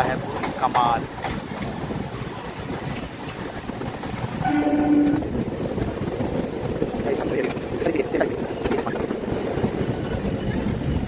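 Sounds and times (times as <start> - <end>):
train running with rumble: 0.0 - 11.0
train horn blast: 4.4 - 5.4.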